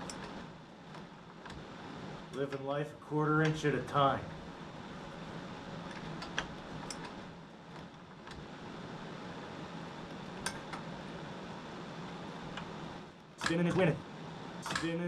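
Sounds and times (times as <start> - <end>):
space heater fans humming: 0.0 - 15.0.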